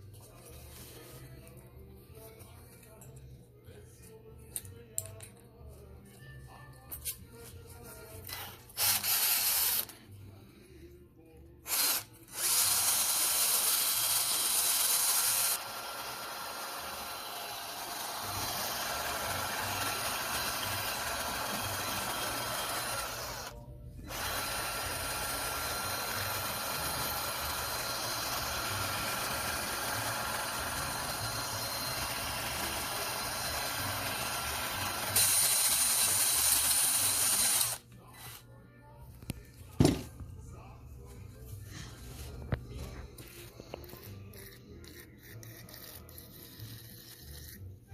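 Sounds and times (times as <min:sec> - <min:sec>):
tool hissing and whirring: 0:08.7 - 0:10.0, 0:11.6 - 0:37.8.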